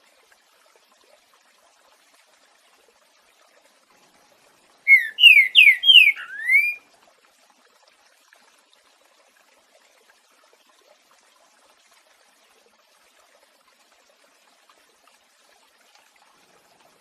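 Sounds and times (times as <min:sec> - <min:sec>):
bird singing slurred whistles: 0:04.9 - 0:06.8.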